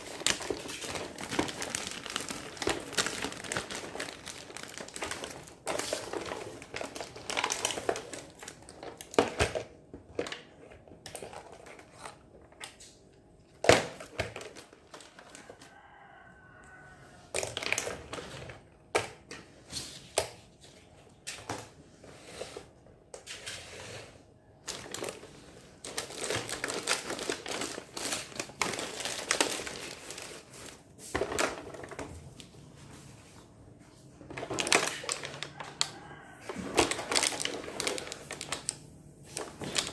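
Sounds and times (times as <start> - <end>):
plastic packaging crinkling: 0.0 - 9.6, 13.6 - 15.6, 24.6 - 32.5, 34.2 - 39.9.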